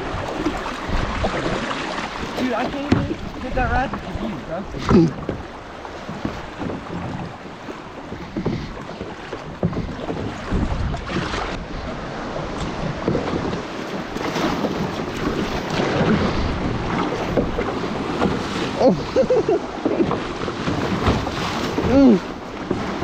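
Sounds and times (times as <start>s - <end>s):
water sloshing around a kayak: 0.0s - 23.0s
wind buffeting microphone: 0.0s - 23.0s
sharp splashes or knocks: 19.8s - 23.0s.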